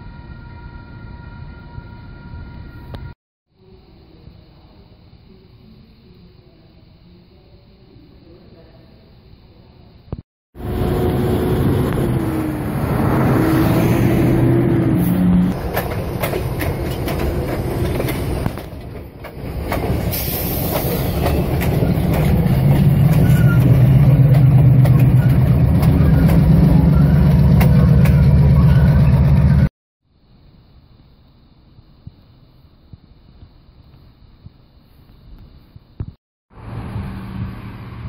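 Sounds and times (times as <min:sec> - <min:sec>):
diesel locomotive engine: 0:10.6 - 0:29.7
wheels clicking over rail joints: 0:15.6 - 0:20.1, 0:20.7 - 0:28.5.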